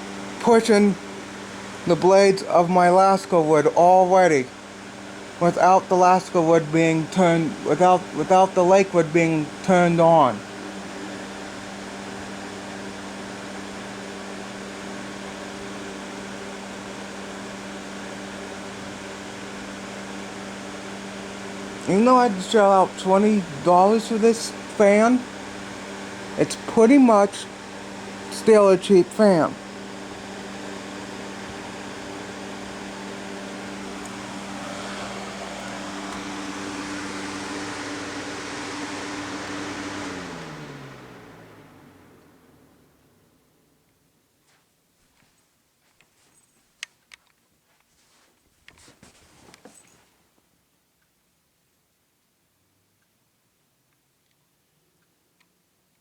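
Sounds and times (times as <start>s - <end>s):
box fan running: 0.0s - 44.1s.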